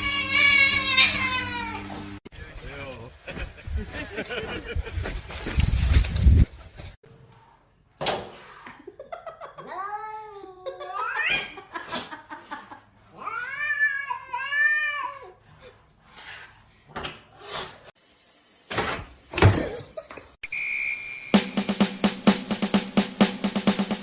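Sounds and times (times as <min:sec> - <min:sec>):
cat meowing: 0:00.0 - 0:01.9, 0:13.1 - 0:15.4.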